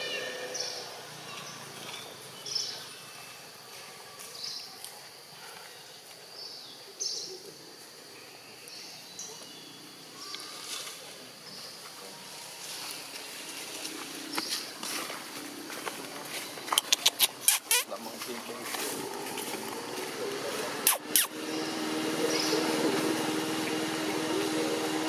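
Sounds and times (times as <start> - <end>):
steady background hiss: 0.0 - 25.0
sharp ticks: 16.7 - 17.8
high-pitched bird chirps: 16.7 - 17.9, 20.8 - 21.3.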